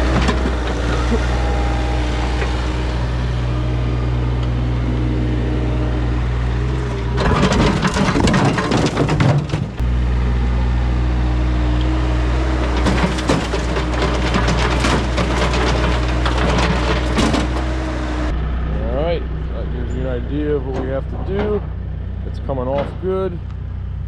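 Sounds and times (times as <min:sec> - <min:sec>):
excavator bucket cracking and crunching: 0:00.0 - 0:02.9, 0:06.7 - 0:09.9, 0:12.5 - 0:18.3
diesel engine running: 0:00.0 - 0:24.0.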